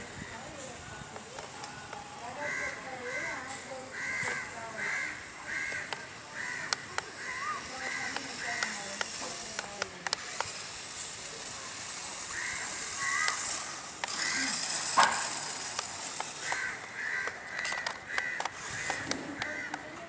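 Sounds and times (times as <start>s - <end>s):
crows cawing: 2.4s - 8.9s, 12.3s - 14.6s, 16.4s - 20.0s
steady high hiss: 4.8s - 19.0s
sharp clicks: 5.9s - 10.8s, 12.3s - 19.9s
loud rasp: 10.2s - 17.3s.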